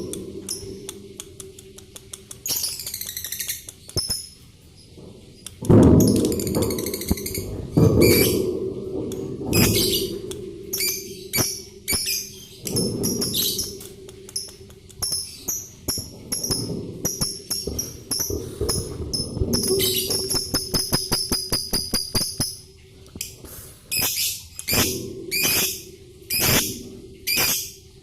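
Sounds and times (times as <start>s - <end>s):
sharp clicks: 0.0s - 4.3s
birds chirping and chattering: 0.0s - 28.0s.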